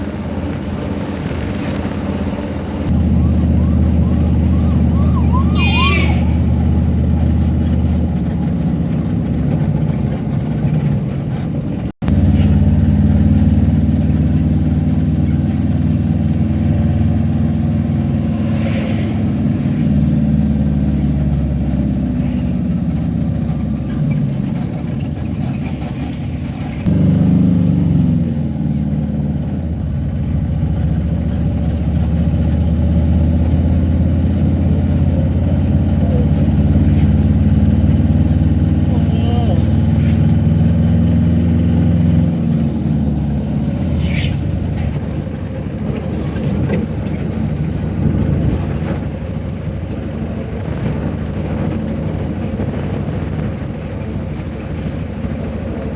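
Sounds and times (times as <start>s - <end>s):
car engine and road drone: 0.0s - 55.9s
brief warbling tone: 3.0s - 7.5s.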